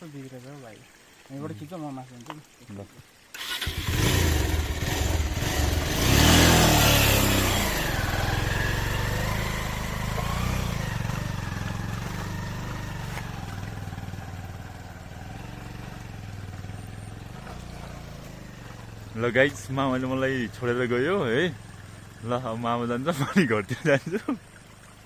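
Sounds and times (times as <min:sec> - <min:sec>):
motorcycle engine revving: 0:03.4 - 0:22.8.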